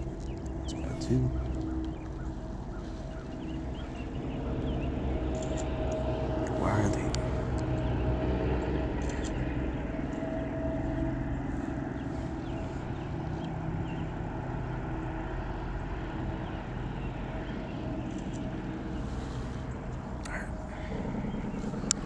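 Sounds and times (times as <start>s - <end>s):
motor humming: 16.0s - 22.0s.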